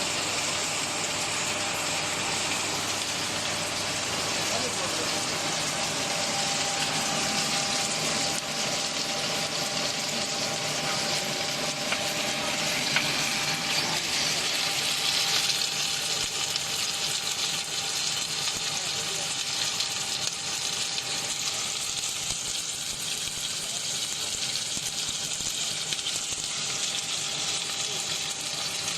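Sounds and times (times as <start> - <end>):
machinery hissing: 0.0 - 16.3
faint machine hum: 0.0 - 28.9.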